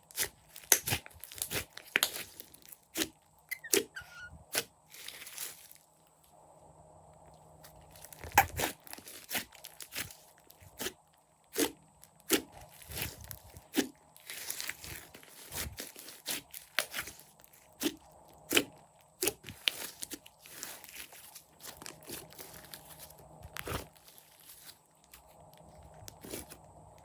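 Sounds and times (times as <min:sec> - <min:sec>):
slime squished by hand: 0:07.9 - 0:24.7.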